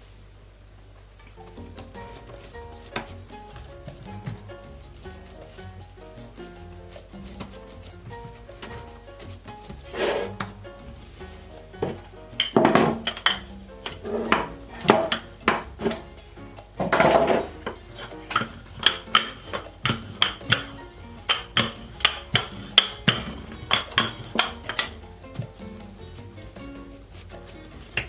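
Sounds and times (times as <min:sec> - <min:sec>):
soft background music: 0:00.8 - 0:28.0
light kitchen knocks and clinks: 0:11.8 - 0:16.1, 0:16.8 - 0:25.5.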